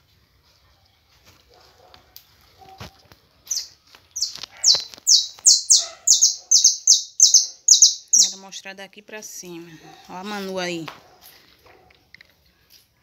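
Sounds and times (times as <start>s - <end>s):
bird calling high notes: 3.5s - 8.4s.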